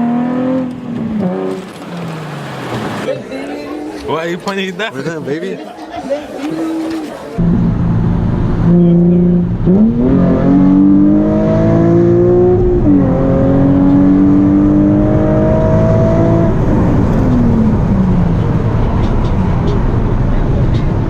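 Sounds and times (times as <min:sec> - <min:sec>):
car engine accelerating hard: 0:07.4 - 0:21.0.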